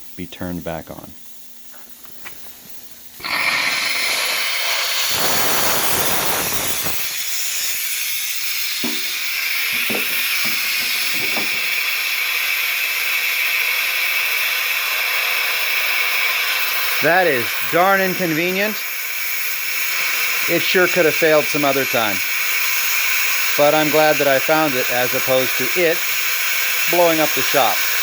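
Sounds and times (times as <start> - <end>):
compressed air hissing: 1.6 - 28.0.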